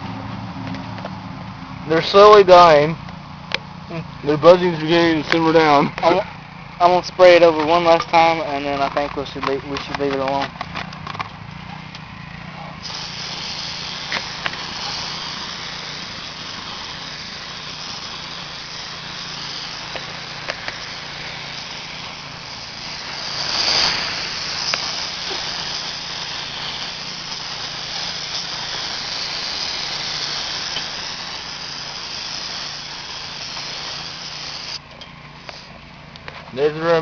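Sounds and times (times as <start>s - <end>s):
steady low hum: 0.0s - 36.6s
aerosol spray hissing: 12.8s - 34.8s.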